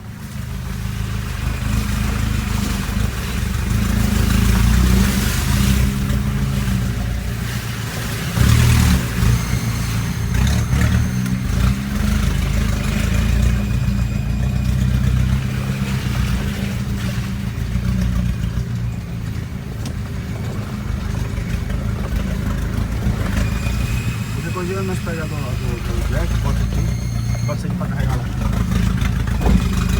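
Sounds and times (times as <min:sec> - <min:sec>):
diesel engine revving under load: 0:00.0 - 0:29.9
knocks and rattles: 0:28.4 - 0:29.9.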